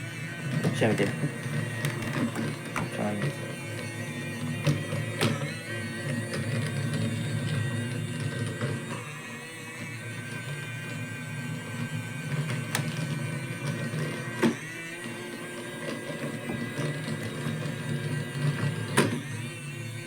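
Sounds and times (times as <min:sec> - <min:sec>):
robot vacuum motor whine: 0:00.0 - 0:20.0.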